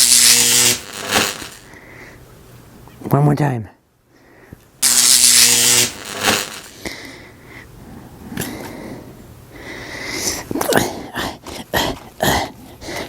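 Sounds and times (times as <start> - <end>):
loud electric buzz: 0.0 - 1.7, 4.8 - 6.9.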